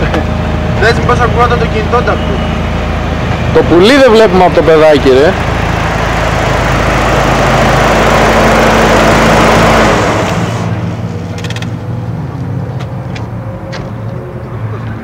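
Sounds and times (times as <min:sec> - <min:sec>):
car engine revving with intake rush: 0:04.9 - 0:11.0.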